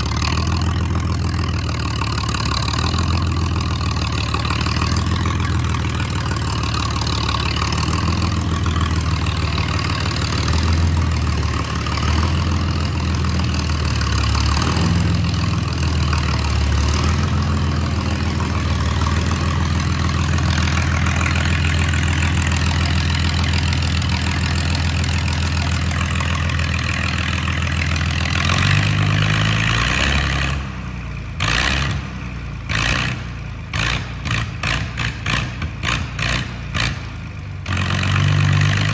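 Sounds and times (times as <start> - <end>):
loud tractor engine running: 0.0 - 38.9.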